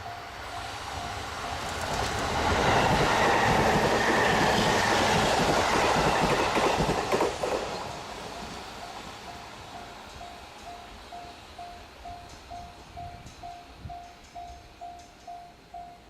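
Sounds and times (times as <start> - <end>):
wheels clacking on track: 0.0 - 15.8
train rumbling past on rails: 0.0 - 16.0.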